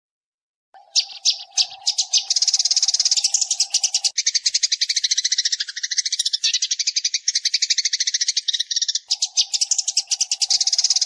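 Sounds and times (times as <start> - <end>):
fast high bird chirps: 0.8 - 11.0.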